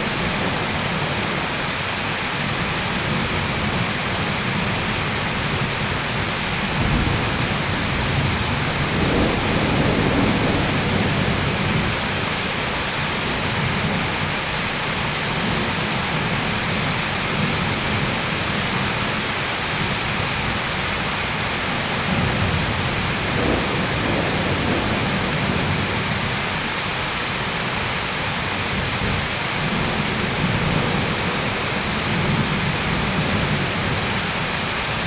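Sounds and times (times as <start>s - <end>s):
heavy rain pouring: 0.0s - 35.0s
rumble of thunder: 2.5s - 14.3s, 21.9s - 26.6s, 28.5s - 34.5s.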